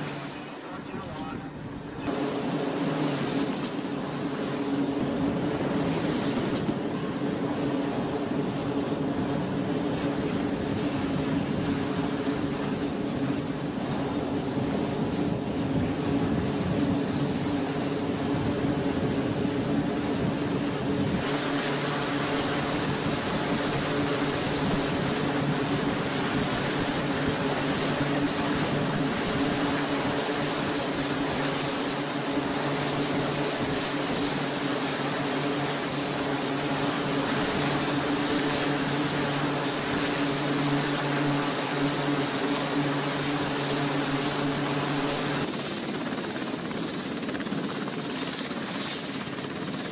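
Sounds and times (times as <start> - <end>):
turboprop engines droning: 0.0 - 49.9.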